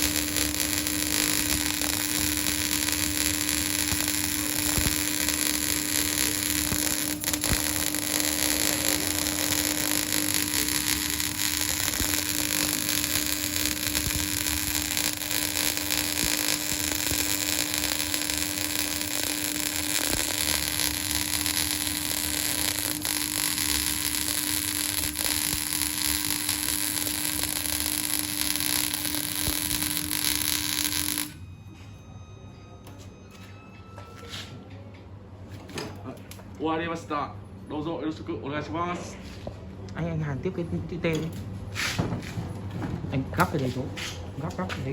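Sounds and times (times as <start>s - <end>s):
arc welding crackling hiss: 0.0s - 31.4s
constant hum: 0.0s - 33.2s.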